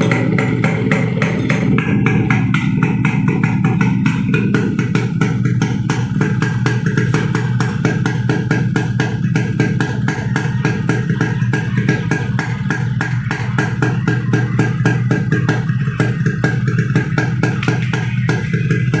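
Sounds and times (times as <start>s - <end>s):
two-stroke engine idling: 0.0s - 19.0s.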